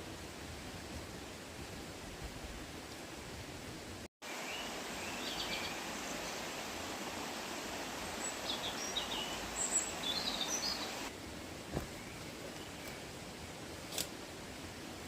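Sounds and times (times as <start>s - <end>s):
outdoor background noise: 0.0s - 15.0s
small birds chirping: 4.2s - 6.7s, 8.0s - 14.0s.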